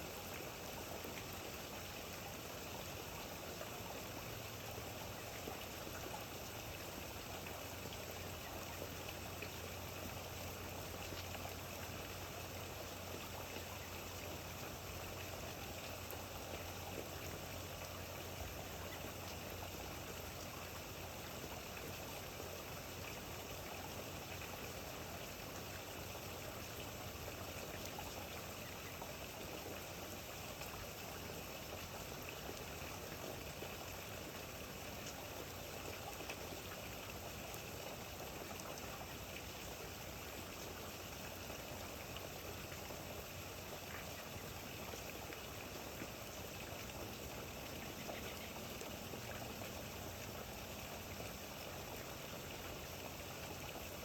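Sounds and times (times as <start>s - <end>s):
trickling water: 0.0s - 54.0s.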